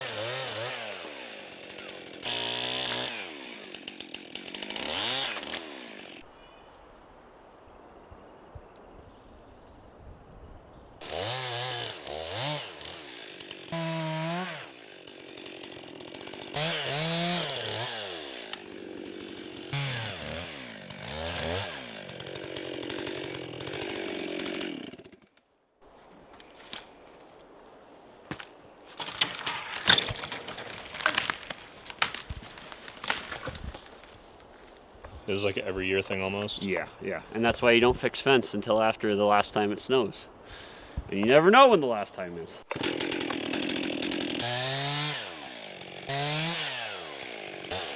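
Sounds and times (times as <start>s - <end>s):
chainsaw revving: 0.0s - 6.2s, 11.0s - 25.3s, 42.6s - 47.9s.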